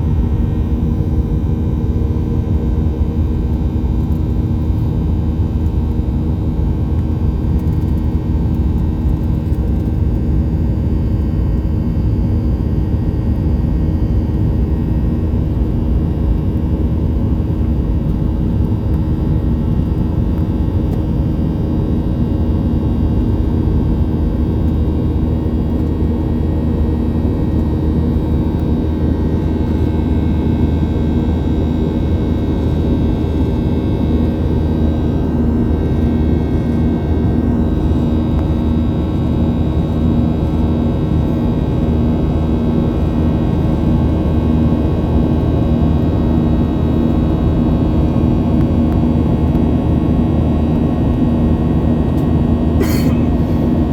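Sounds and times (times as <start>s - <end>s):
airplane cabin engine drone: 0.0s - 53.9s.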